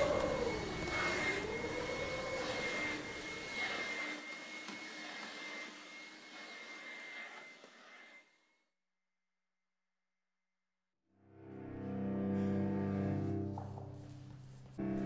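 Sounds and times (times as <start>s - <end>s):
steady high whistle: 0.0s - 4.6s
wavering siren-like tone: 0.0s - 4.6s
rushing jet-like noise: 0.0s - 5.2s.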